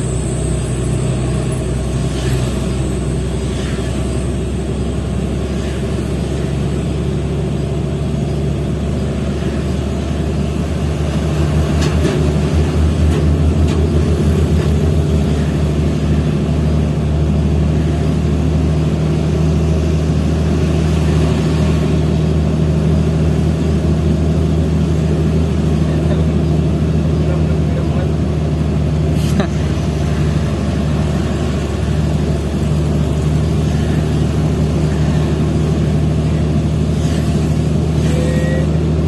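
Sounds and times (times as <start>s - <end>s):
truck diesel engine running: 0.0s - 39.0s.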